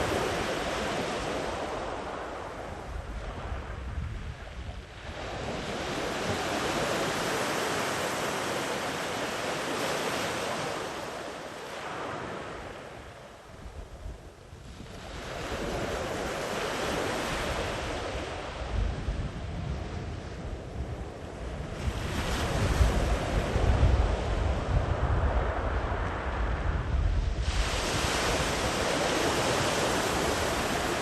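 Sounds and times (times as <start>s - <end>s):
sea waves breaking on beach: 0.0s - 13.5s, 14.6s - 18.7s, 27.3s - 31.0s.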